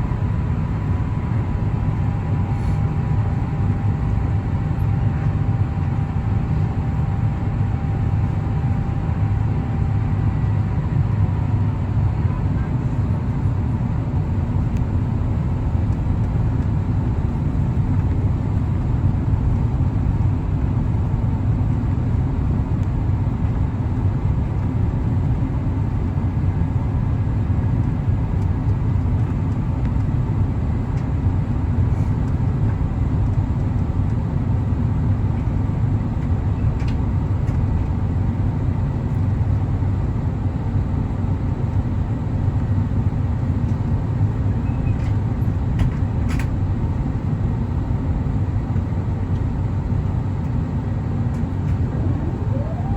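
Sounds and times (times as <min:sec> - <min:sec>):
airplane cabin rumble: 0:00.0 - 0:52.9
faint steady tones: 0:51.3 - 0:52.9.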